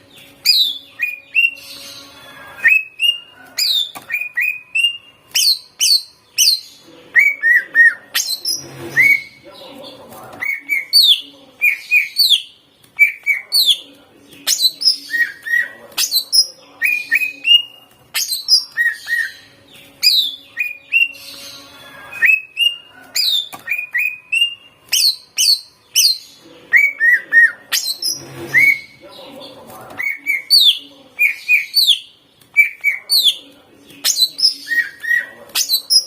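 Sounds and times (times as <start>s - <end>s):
bird singing whistles and chirps: 0.4s - 9.4s, 14.5s - 29.0s, 34.0s - 36.0s.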